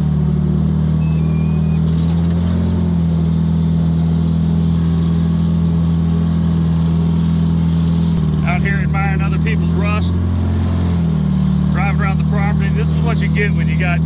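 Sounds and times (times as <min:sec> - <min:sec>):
diesel engine running: 0:00.0 - 0:14.0
faint squeal: 0:00.9 - 0:02.0.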